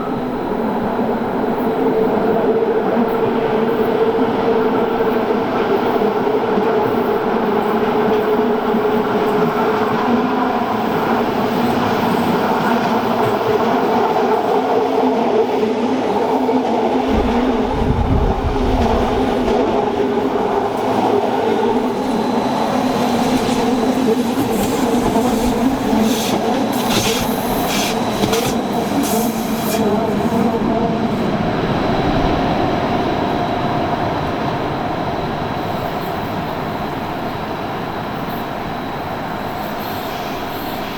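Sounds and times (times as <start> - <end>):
train running with motor hum: 0.0 - 40.9
low thumps: 17.0 - 19.8
train wheels clicking: 20.5 - 30.4.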